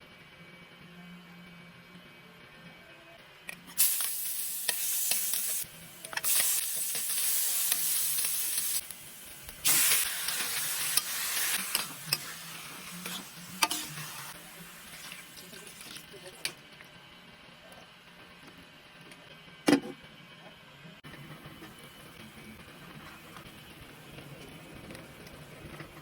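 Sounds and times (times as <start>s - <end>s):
food sizzling in hot oil: 3.8s - 16.1s.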